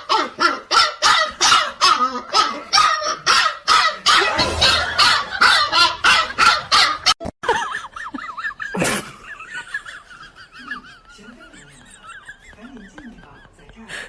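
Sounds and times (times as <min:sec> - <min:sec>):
sharp loud sound: 0:04.1 - 0:06.6.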